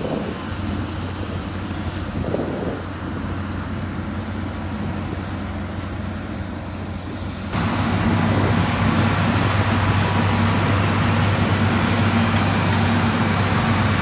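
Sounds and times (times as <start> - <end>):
diesel engine droning: 0.0 - 14.0.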